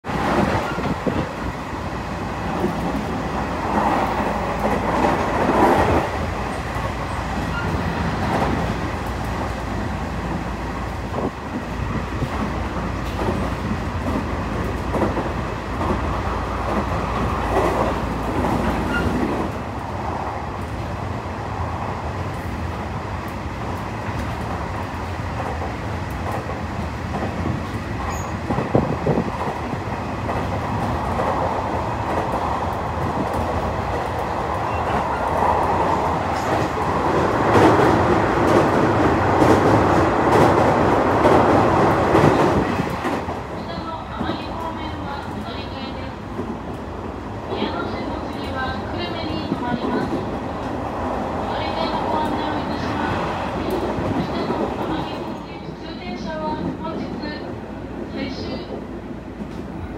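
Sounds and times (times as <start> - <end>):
wheels rumbling on rail: 0.0 - 59.9.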